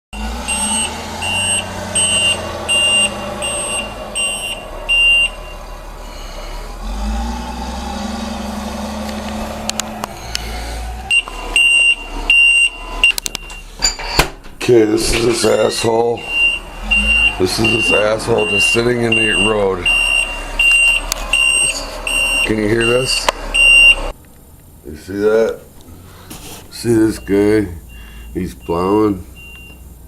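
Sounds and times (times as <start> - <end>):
truck engine running: 0.1 - 13.8, 14.5 - 24.8
backup alarm beeping: 0.2 - 6.2, 11.1 - 14.0, 15.1 - 24.1, 27.0 - 29.9.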